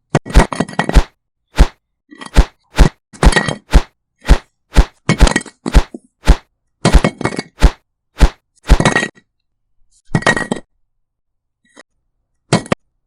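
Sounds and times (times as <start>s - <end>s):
hammer blows on hard material: 0.3s - 1.8s, 2.4s - 8.9s.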